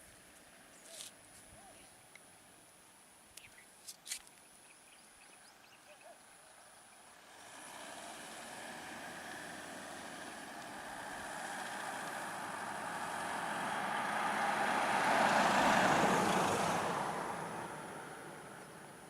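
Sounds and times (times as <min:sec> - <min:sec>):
road vehicle passing by: 0:06.1 - 0:19.0.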